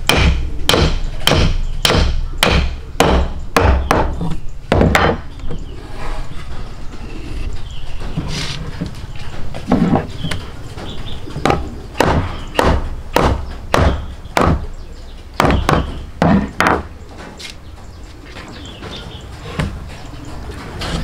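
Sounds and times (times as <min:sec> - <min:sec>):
sharp knocks: 0:00.1 - 0:05.3, 0:11.4 - 0:14.7, 0:15.4 - 0:16.9.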